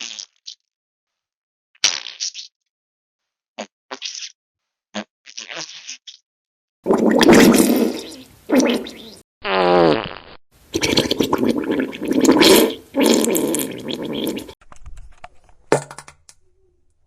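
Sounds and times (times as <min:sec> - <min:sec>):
fart sound effects: 0:06.9 - 0:14.6.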